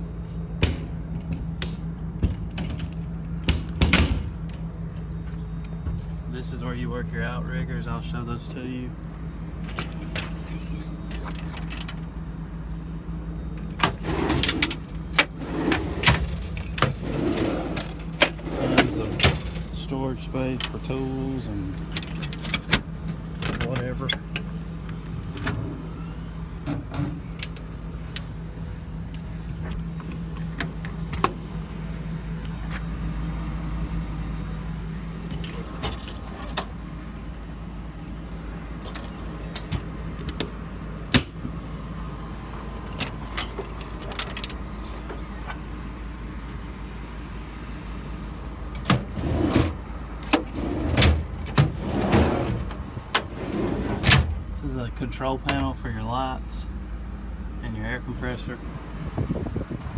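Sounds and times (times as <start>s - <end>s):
steady low hum: 0.0s - 59.9s
metal doors and latches clicking: 13.5s - 19.8s, 48.7s - 54.6s
knocks and rattles: 13.6s - 19.8s.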